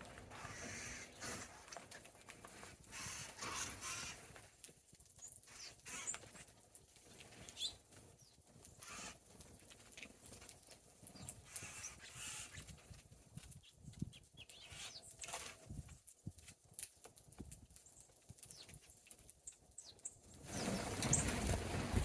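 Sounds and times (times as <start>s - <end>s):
small birds calling: 0.3s - 1.8s, 2.8s - 4.5s, 5.2s - 6.5s, 7.1s - 9.4s, 11.0s - 15.8s, 17.8s - 21.6s.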